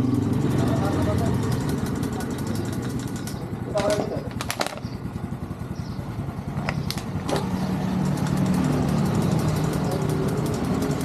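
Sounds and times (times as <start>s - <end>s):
motorcycle engine idling: 0.0s - 11.0s
sharp clicks: 1.5s - 4.9s.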